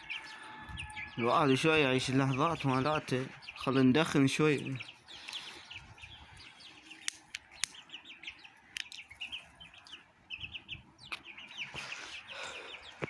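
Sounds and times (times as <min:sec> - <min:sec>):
small birds chirping: 0:00.0 - 0:13.0
sharp clicks: 0:07.0 - 0:07.8, 0:08.7 - 0:09.1.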